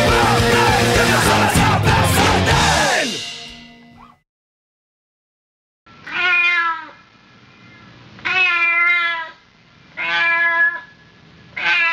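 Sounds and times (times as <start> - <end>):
cat meowing: 6.0 - 7.0, 8.2 - 9.4, 10.0 - 11.0, 11.6 - 11.9.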